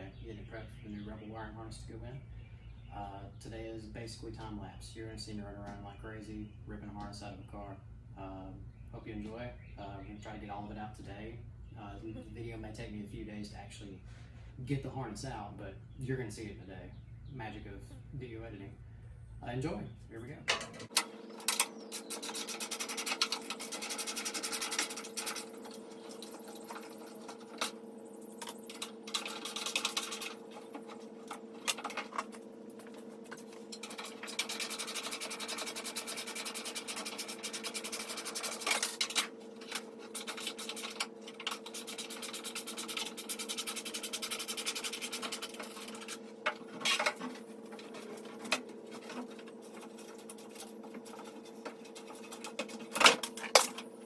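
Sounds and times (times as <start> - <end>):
steady hum: 0.0 - 54.0
rubbing scratching and clicking: 20.5 - 27.8, 28.4 - 53.8.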